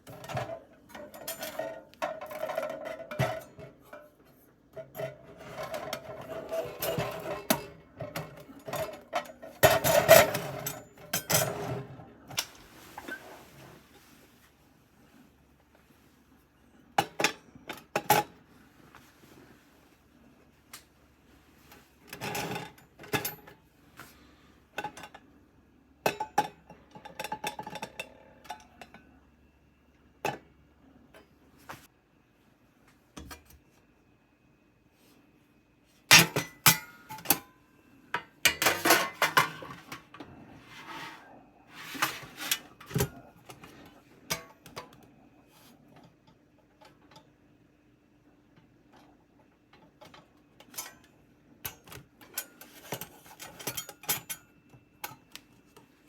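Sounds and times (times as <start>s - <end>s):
metal cookware clattering: 0.0s - 13.2s, 22.1s - 23.5s, 36.1s - 37.5s, 38.2s - 43.4s, 44.3s - 45.0s, 51.7s - 54.5s.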